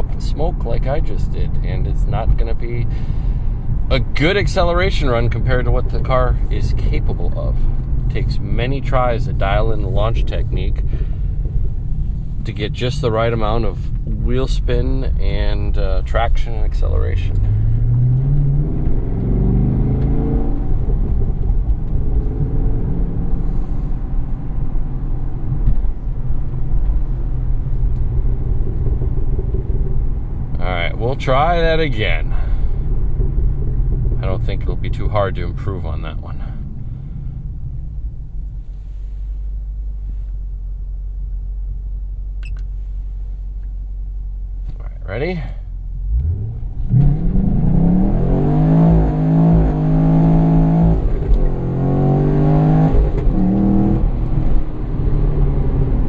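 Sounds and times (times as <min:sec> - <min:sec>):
car engine rumbling from inside cabin: 0:00.0 - 0:56.0.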